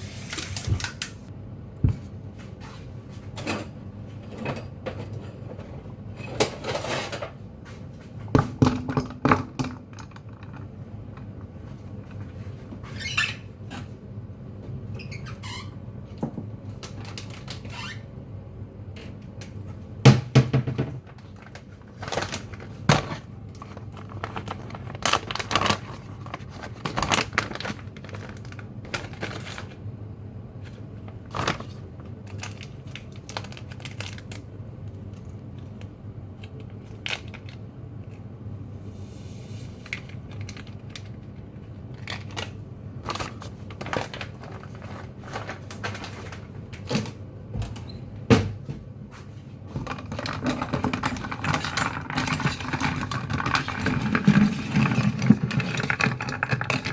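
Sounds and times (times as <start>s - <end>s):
objects knocking and clicking: 8.3s - 11.3s, 49.7s - 56.9s.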